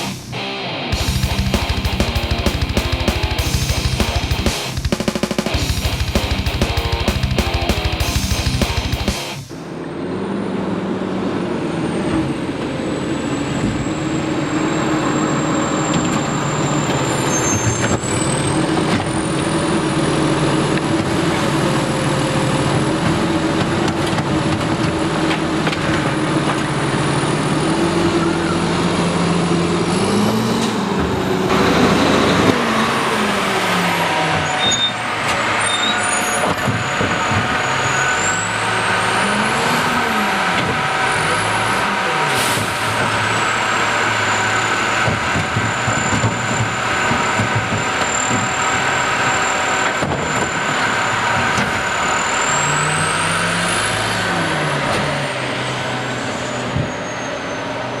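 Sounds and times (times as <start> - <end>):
high thin whine: 0.0 - 9.8.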